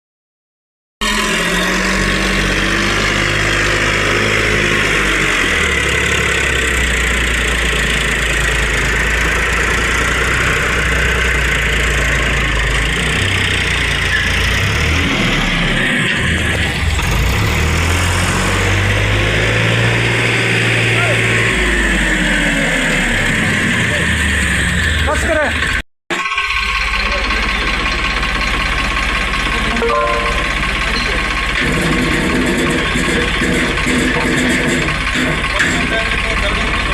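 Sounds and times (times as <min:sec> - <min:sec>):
tractor diesel engine running: 0:01.1 - 0:14.8, 0:25.2 - 0:36.9.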